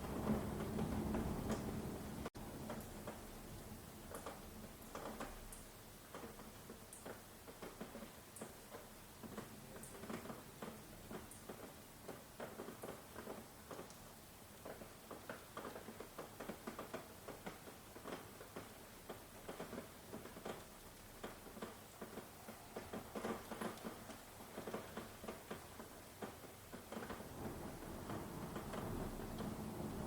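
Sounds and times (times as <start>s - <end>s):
rain dripping and pattering: 0.0s - 30.0s.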